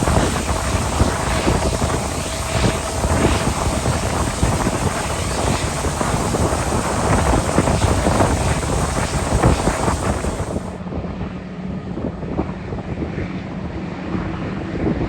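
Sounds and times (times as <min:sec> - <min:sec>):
loud rushing noise: 0:00.0 - 0:10.8
wind buffeting microphone: 0:00.0 - 0:10.8.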